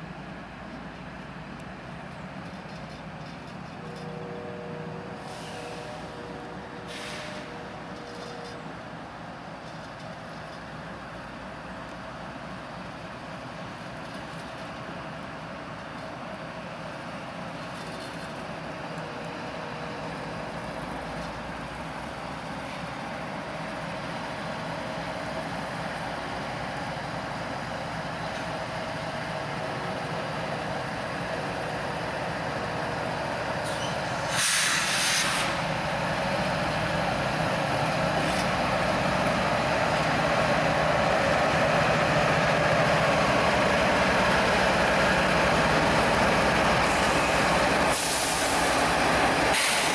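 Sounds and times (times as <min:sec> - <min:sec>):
train rumble and hum: 0:00.0 - 0:49.9
sharp hiss: 0:33.6 - 0:35.9, 0:46.8 - 0:49.9.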